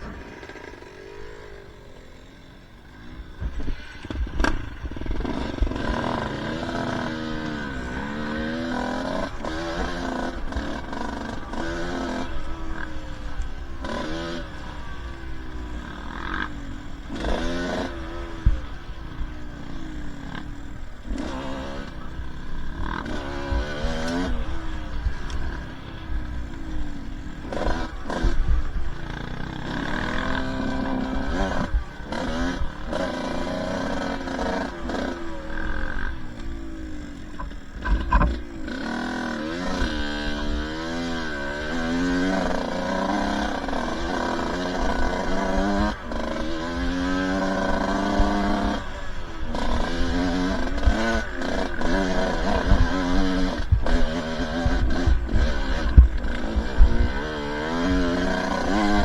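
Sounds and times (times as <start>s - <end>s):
dirt bike engine revving: 0.0s - 59.0s
sharp knocks and thumps: 37.4s - 38.4s.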